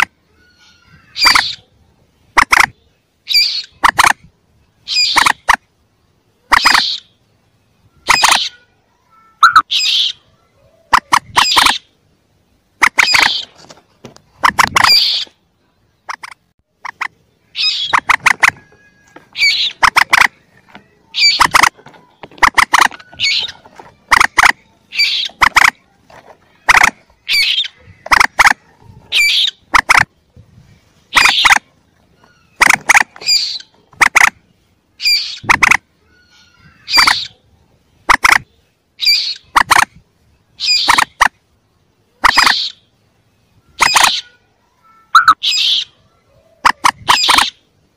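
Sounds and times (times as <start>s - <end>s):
young moorhens squeaky calls: 0.0s - 5.7s, 6.4s - 13.7s, 14.3s - 15.4s, 16.0s - 47.9s.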